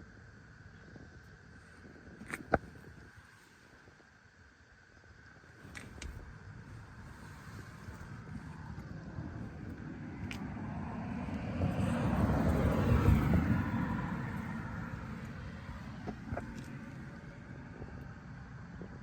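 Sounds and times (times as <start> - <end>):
vehicle passing by: 8.8 - 17.3.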